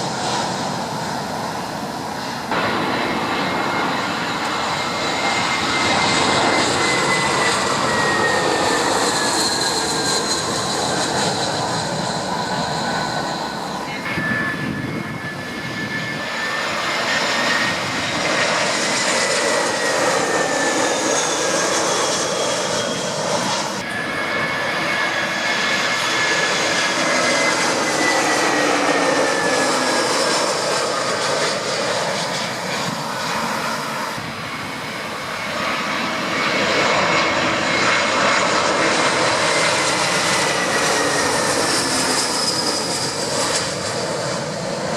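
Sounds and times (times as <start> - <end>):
jet engines roaring: 0.0 - 44.9.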